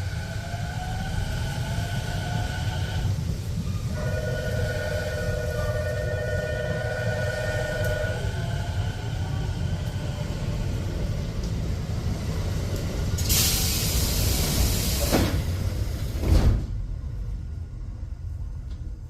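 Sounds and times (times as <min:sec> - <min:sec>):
low hum of standing train: 0:00.0 - 0:19.0
train doors shutting with thud: 0:11.0 - 0:17.0
air hiss of train doors: 0:12.8 - 0:16.8.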